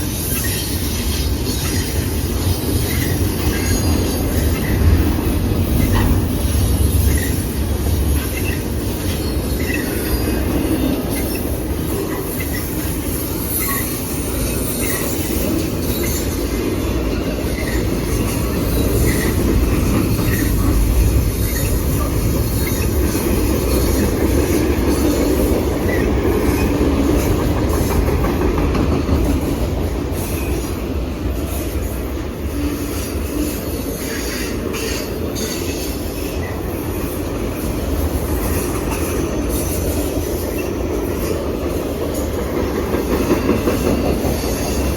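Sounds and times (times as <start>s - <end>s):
wheel squeals: 0.0s - 28.0s
wheels clicking over rail joints: 0.0s - 30.8s, 34.0s - 44.9s
train cars rumbling on rails: 0.0s - 44.9s.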